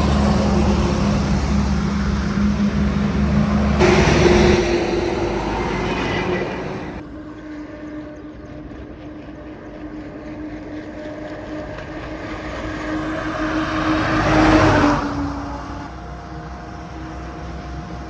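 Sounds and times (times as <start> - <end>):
diesel trucks passing: 0.0 - 7.0, 11.4 - 15.9.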